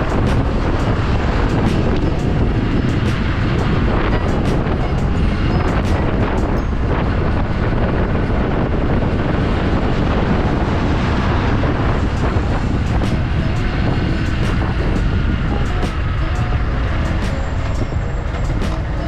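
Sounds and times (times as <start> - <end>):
wind and road noise: 0.0 - 19.0.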